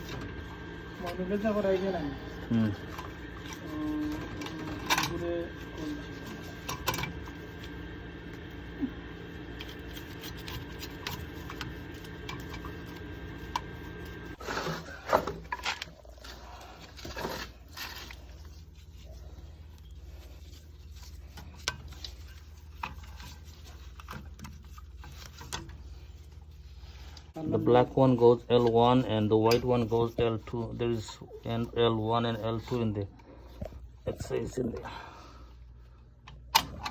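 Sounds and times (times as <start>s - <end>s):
low hum: 0.0s - 24.1s
handling clicks and scraping: 0.0s - 34.7s.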